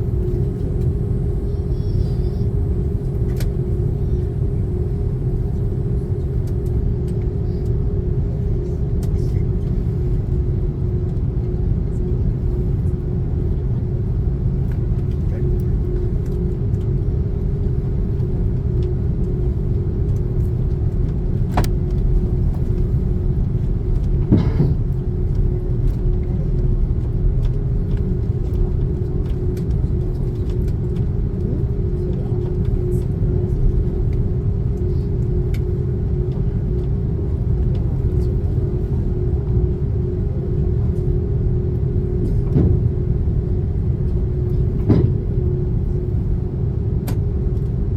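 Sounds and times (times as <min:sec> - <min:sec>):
airliner cabin rumble: 0:00.0 - 0:47.9
constant hum: 0:00.0 - 0:47.9.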